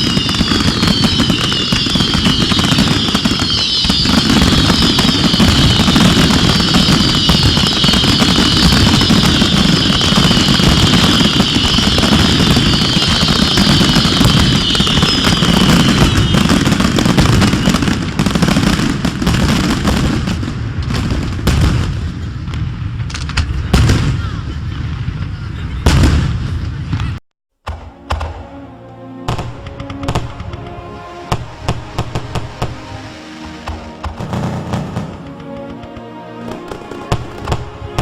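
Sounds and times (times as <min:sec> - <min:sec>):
high shrill whistling: 0:00.0 - 0:17.9
fireworks booms and crackles: 0:00.0 - 0:28.4, 0:29.3 - 0:38.0.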